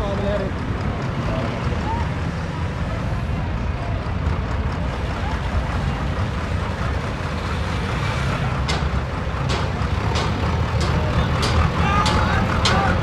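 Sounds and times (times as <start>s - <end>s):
road and wind noise: 0.0s - 13.0s
tractor engine running: 0.0s - 13.0s
sharp clicks: 8.7s - 13.0s.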